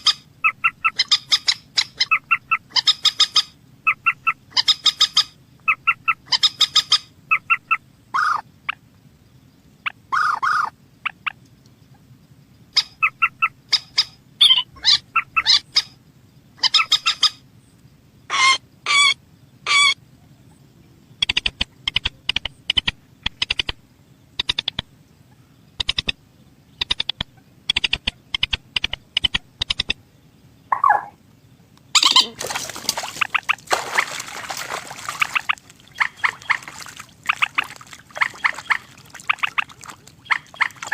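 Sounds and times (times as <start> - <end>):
rail bird calls pulsed bursts: 0.0 - 8.8, 12.7 - 16.0, 21.2 - 30.0, 30.6 - 31.2, 33.0 - 40.9.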